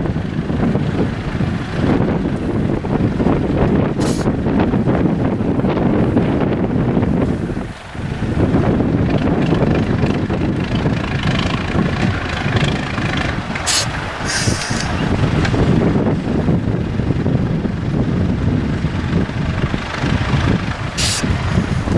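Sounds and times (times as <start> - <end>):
diesel truck engine running hard: 0.0 - 21.9
wind noise on microphone: 0.0 - 21.9
short hisses: 4.0 - 4.3, 13.7 - 15.0, 21.0 - 21.4.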